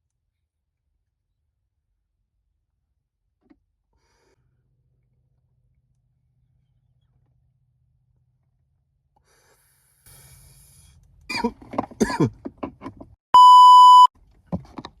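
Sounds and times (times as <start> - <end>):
censor bleep tone: 13.4 - 14.1.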